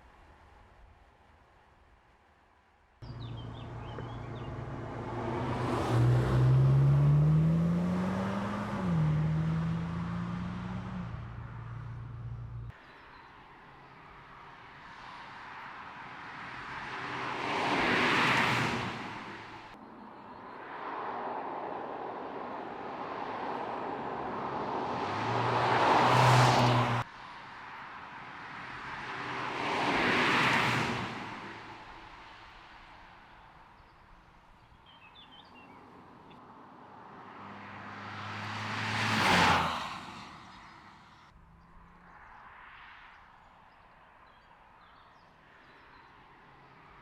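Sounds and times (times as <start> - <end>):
car driving past: 3.0 - 12.7, 20.6 - 27.0, 37.0 - 43.1.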